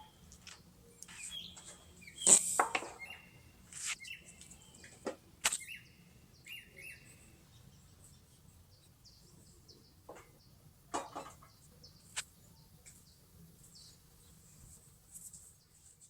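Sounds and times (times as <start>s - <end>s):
bird chirps: 0.0s - 10.6s.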